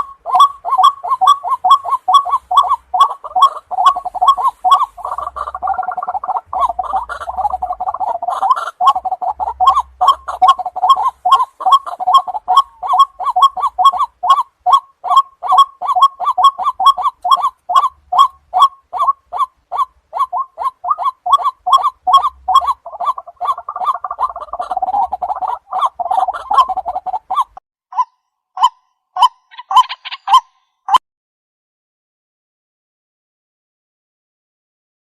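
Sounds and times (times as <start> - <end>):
waterhen calling: 0.0 - 31.0.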